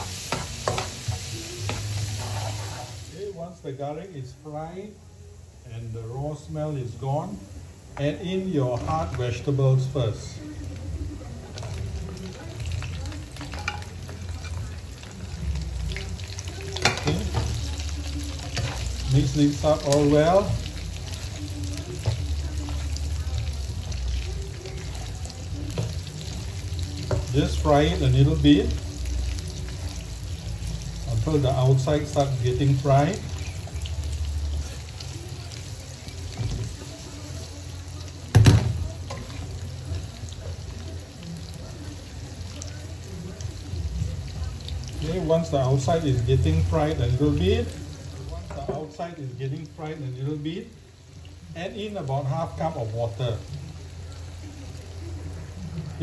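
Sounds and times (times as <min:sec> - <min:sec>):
vegetables frying in hot oil: 0:00.0 - 0:56.0.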